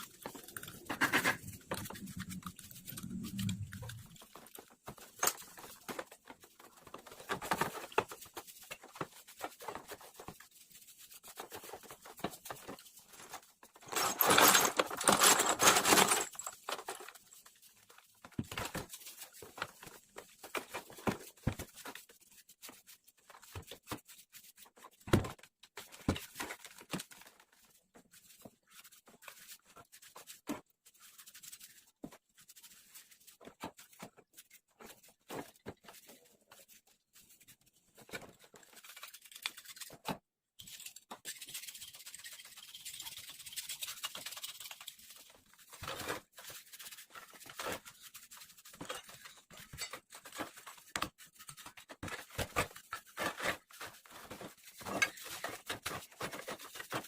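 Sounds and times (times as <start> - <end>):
small parts clicking and scraping: 0.0 - 18.1, 38.1 - 57.0.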